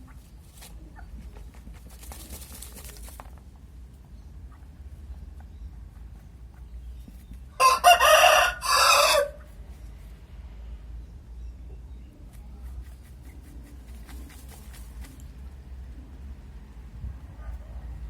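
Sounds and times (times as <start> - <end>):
rooster crowing: 7.6 - 9.4.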